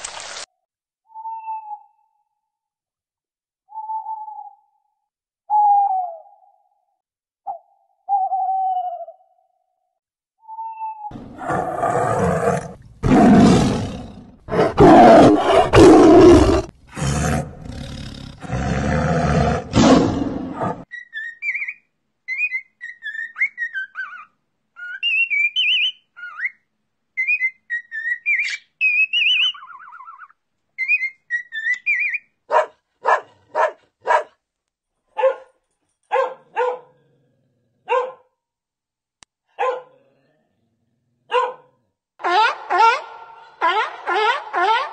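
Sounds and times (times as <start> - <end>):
lion roaring: 11.1 - 20.8
dog barking: 32.5 - 34.4, 35.1 - 37.0, 37.8 - 38.4, 39.5 - 40.0, 41.3 - 44.9.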